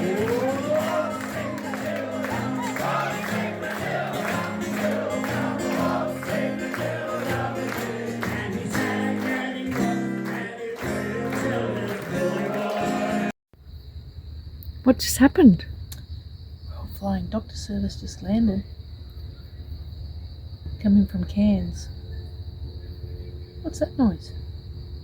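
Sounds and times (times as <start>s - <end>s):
music with singing and beat: 0.0s - 13.3s.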